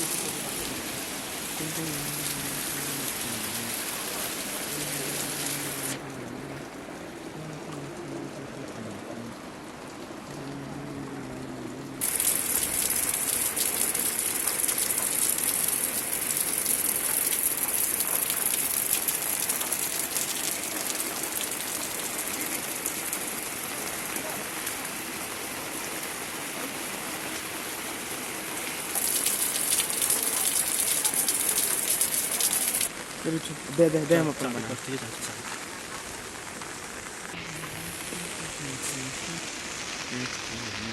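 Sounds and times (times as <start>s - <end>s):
heavy rain pouring: 0.0s - 40.9s
faint voice: 1.6s - 9.6s, 10.2s - 12.0s, 37.3s - 40.9s.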